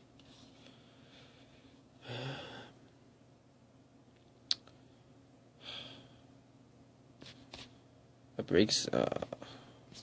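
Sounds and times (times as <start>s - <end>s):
person sighing: 2.0s - 2.8s.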